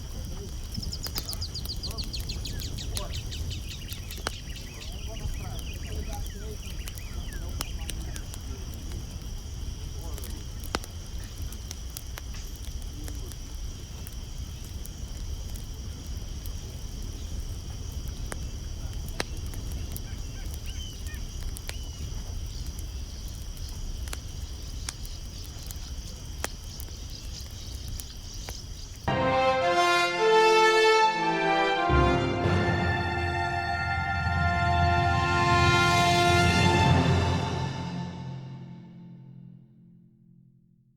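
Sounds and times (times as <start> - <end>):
insects chorus: 0.0 - 29.1.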